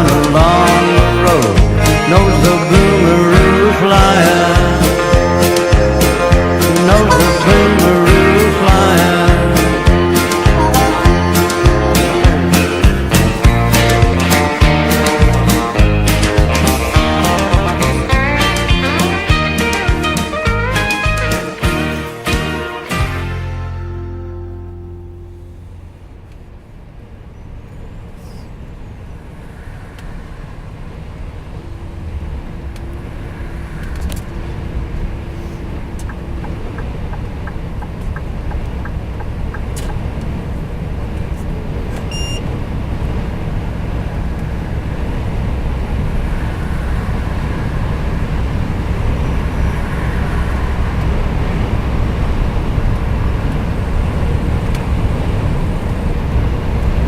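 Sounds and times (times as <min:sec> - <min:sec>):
truck engine and road rumble: 0:00.0 - 0:57.0
regular ticks: 0:35.9 - 0:40.4.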